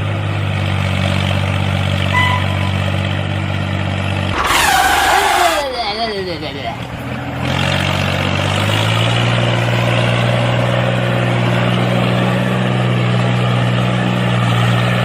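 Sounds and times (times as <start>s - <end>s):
motor running: 4.3s - 5.8s.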